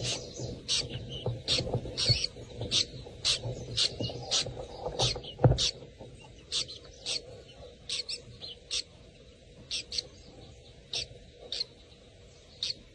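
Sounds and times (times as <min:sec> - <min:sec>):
small bird chirping: 0:00.0 - 0:12.9.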